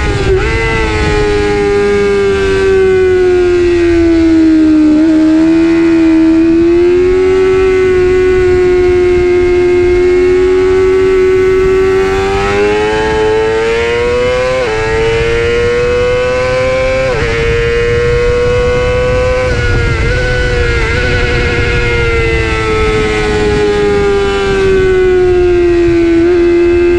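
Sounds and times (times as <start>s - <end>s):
motorcycle engine at high revs: 0.0s - 26.9s.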